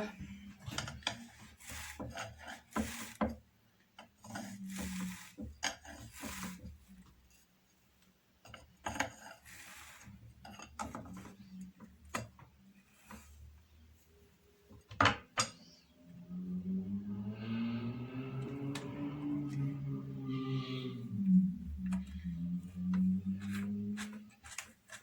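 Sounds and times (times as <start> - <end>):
scratchy rasping strokes: 1.2 - 3.2, 4.2 - 6.8, 9.1 - 10.2, 19.0 - 25.0.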